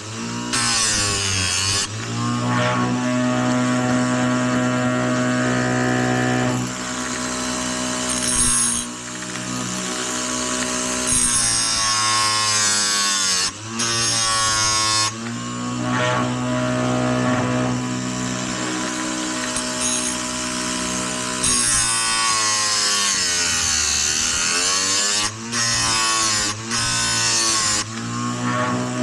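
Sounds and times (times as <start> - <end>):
grinder motor running: 0.0 - 29.0
wheel grinding chain: 3.4 - 11.9.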